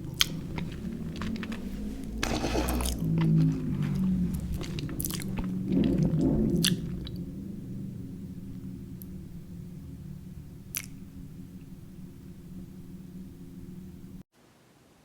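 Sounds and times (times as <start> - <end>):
sticky mouth clicks: 0.0 - 7.2, 10.7 - 11.0
chewing chewy candy: 0.0 - 7.8, 10.7 - 11.8.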